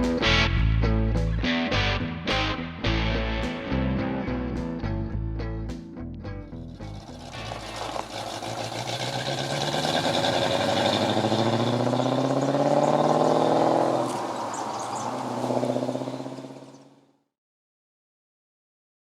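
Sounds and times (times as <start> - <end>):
car engine accelerating: 6.5 - 17.0.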